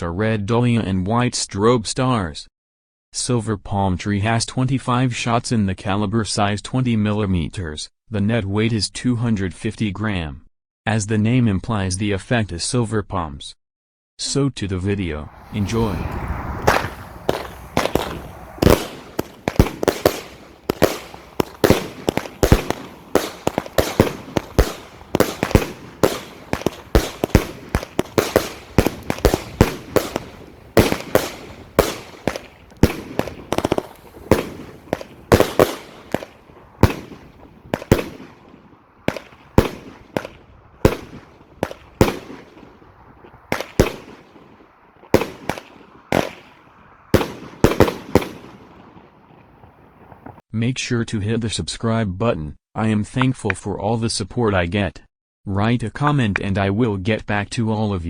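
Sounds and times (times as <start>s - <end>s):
fireworks shot reports: 15.0s - 50.4s.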